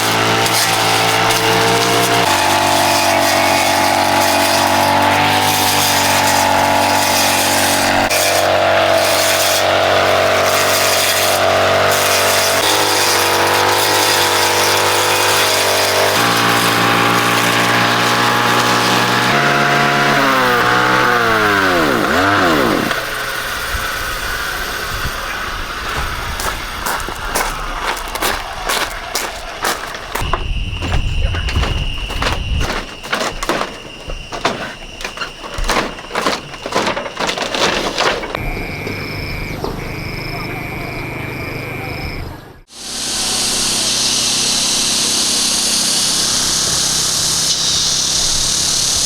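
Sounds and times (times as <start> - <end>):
motor running: 0.0 - 28.4, 31.5 - 49.0
motor winding down whine: 12.0 - 27.8, 38.3 - 49.0.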